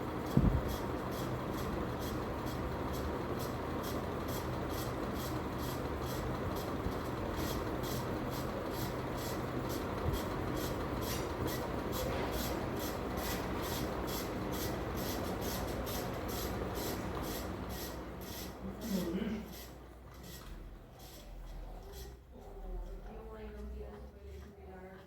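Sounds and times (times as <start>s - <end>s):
ceiling fan humming: 0.0s - 25.0s
rhythmic rubbing scrape: 19.5s - 22.2s.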